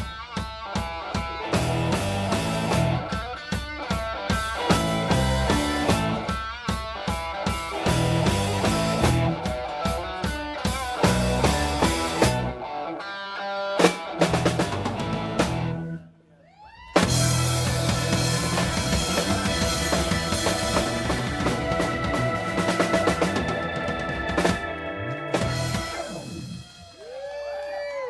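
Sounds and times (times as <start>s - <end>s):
rock band playing: 0.0s - 16.1s, 17.0s - 27.2s
rising guitar glides: 10.8s - 16.0s, 17.0s - 27.0s.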